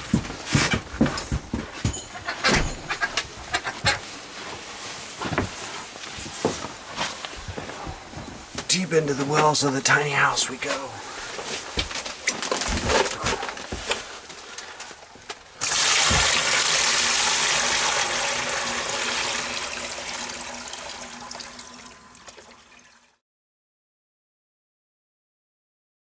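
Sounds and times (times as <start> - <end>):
knocks and clunks: 0.0 - 4.0
water gushing into a barrel: 15.6 - 23.2.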